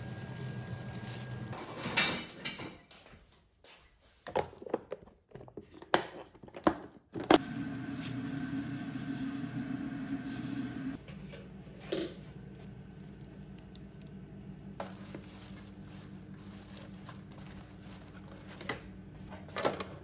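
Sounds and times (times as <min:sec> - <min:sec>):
appliance hum: 0:00.0 - 0:03.0, 0:07.1 - 0:20.0.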